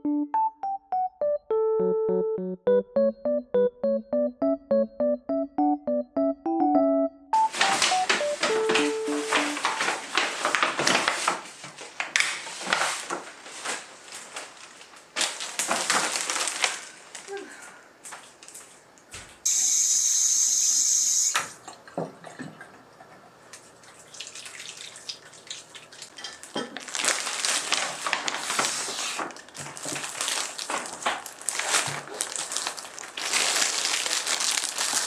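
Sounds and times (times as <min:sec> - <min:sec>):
things clattering at sink: 0:26.0 - 0:26.9.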